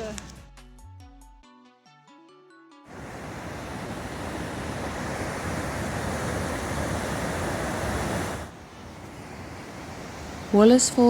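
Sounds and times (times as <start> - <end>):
waterfall rushing: 2.9 - 11.0.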